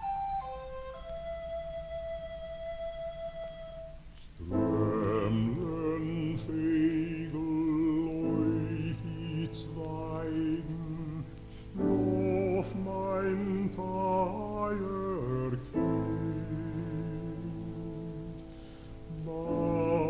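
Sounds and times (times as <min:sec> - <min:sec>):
instrumental accompaniment: 0:00.0 - 0:05.3
man singing operatic lullaby: 0:04.4 - 0:20.0.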